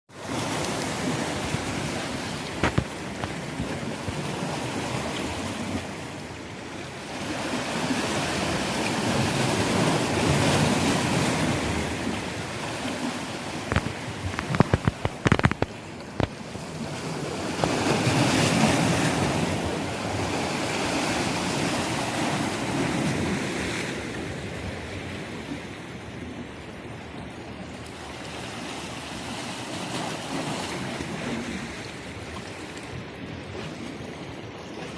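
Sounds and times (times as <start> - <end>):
sea waves surging: 0.1 - 34.9
wind buffeting microphone: 0.3 - 6.0, 8.2 - 27.6
sharp knocks: 2.6 - 3.3.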